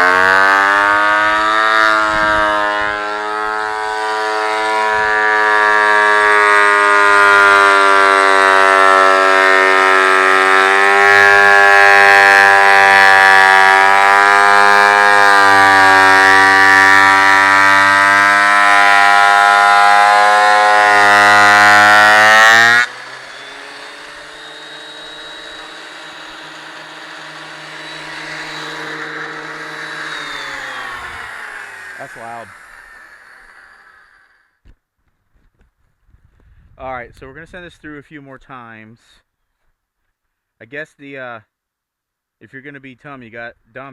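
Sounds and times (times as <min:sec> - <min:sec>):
thickness planer whining: 0:00.0 - 0:34.5.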